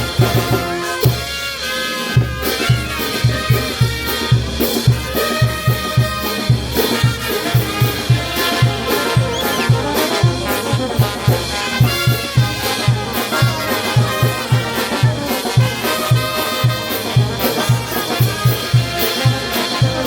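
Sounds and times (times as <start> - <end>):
brass band playing: 0.0 - 20.0
bass drum beat: 2.6 - 20.0.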